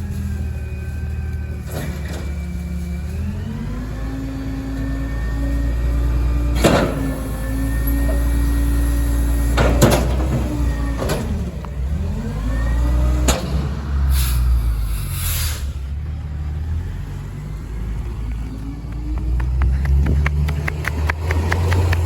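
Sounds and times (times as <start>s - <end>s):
diesel engine running under load: 0.0s - 22.0s
hydraulic compactor whine: 0.1s - 14.1s
trash cracking and banging: 6.5s - 13.8s
brief hiss: 14.1s - 15.9s.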